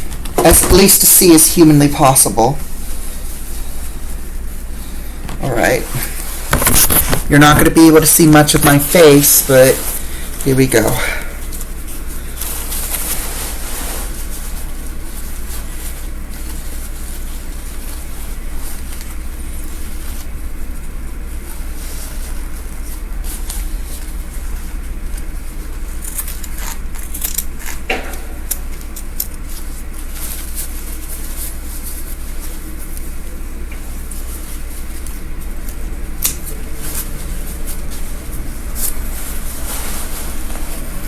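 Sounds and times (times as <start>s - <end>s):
fabric rustling: 0.0s - 27.1s, 28.0s - 41.0s
steady low hum: 0.0s - 41.0s
scissors snipping: 26.0s - 29.4s, 35.6s - 36.5s.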